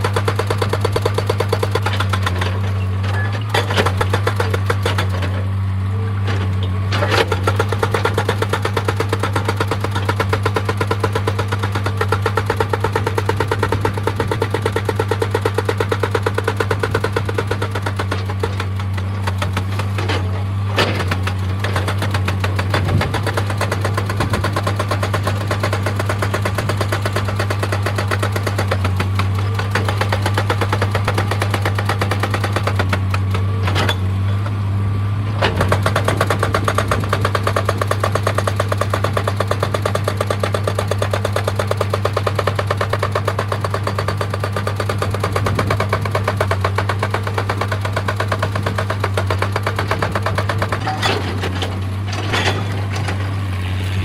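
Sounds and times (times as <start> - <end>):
hydraulic rock breaker hammering stone: 0.0 - 5.6, 6.2 - 34.6, 35.3 - 54.0
machine engine drone: 48.0 - 54.0.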